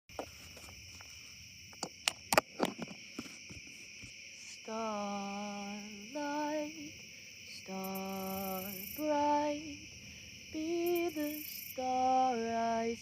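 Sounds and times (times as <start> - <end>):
crickets chirring: 0.1 - 13.0
person singing a lullaby: 4.4 - 13.0.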